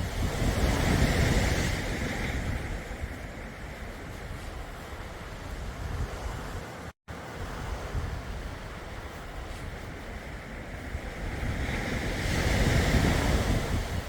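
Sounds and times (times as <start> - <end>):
surf hiss: 0.0 - 14.0.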